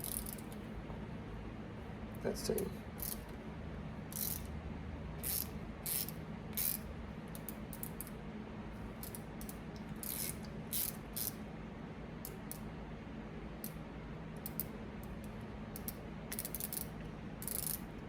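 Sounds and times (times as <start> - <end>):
ratchet clicking: 0.0 - 0.6, 3.0 - 3.3, 4.1 - 4.5, 5.2 - 8.1, 9.0 - 11.4, 14.4 - 14.7, 15.8 - 17.9
steady low hum: 0.0 - 18.0.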